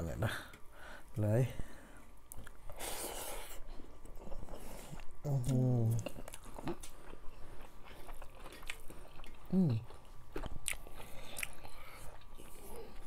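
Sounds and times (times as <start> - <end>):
chewing with wet lip smacks: 6.0 - 13.0
person humming mm: 9.5 - 9.9.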